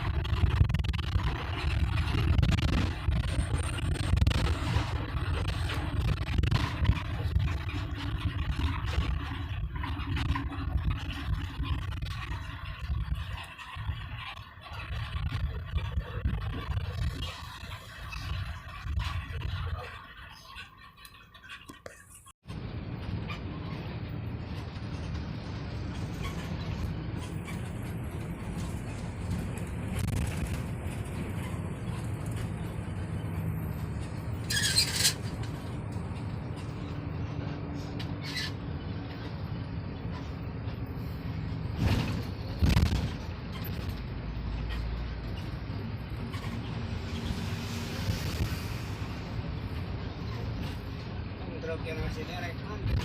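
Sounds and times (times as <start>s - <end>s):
vehicle rumbling on road: 0.0s - 53.0s.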